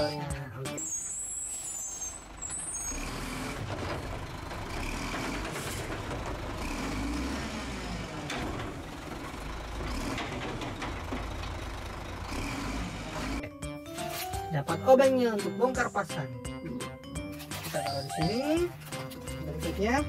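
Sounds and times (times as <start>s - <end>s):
low engine rumble: 0.0s - 13.6s
garbage truck hydraulic arm lifting: 0.8s - 13.4s.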